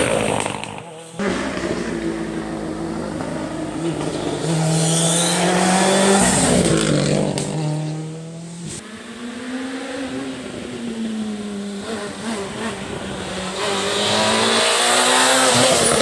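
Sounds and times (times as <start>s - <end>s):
sharp exhaust cracks: 0.0s - 7.8s
rally car engine running hard: 0.0s - 16.0s.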